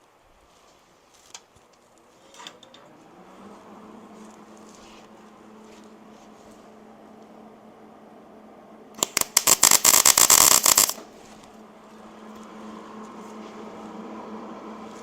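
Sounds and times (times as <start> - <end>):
steady low hum: 3.0 - 15.0
welder arc popping: 9.0 - 11.1.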